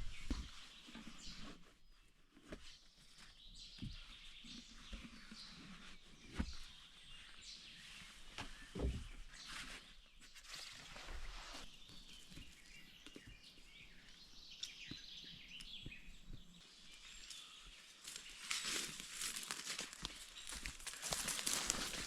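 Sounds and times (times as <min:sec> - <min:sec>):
crackling rustle: 0:16.4 - 0:22.0.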